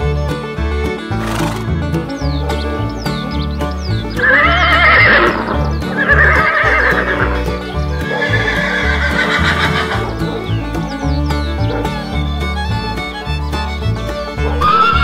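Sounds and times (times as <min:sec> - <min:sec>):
horse whinnying: 0:01.1 - 0:01.8, 0:04.1 - 0:10.9, 0:14.4 - 0:15.0.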